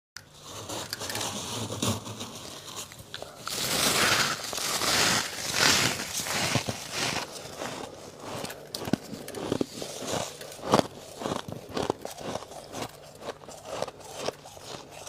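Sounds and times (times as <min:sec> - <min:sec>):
freezer frost crackling: 0:00.2 - 0:15.0
scraping through frost: 0:00.4 - 0:15.0.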